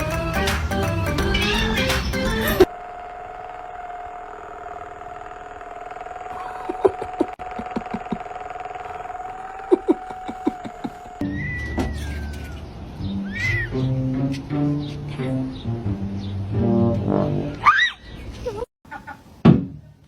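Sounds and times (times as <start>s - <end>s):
steady machine hum: 0.2s - 11.2s.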